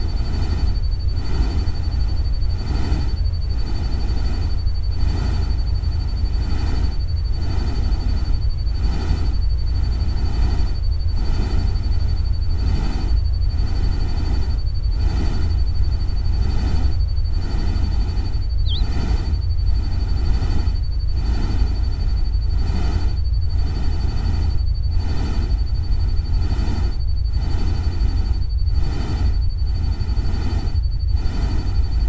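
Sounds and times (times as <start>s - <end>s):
deep steady rumble: 13.6s - 20.0s
steady high tone: 18.6s - 18.9s.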